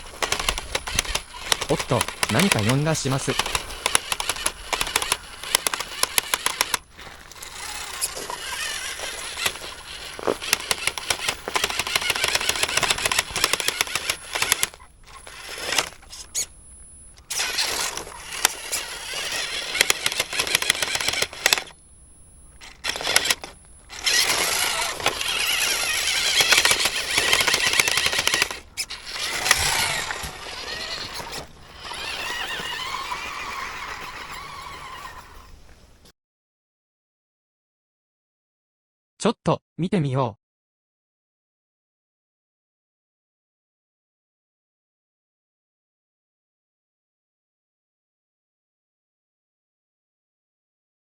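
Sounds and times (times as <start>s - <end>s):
toy car motor and gears rattling: 0.0s - 36.0s.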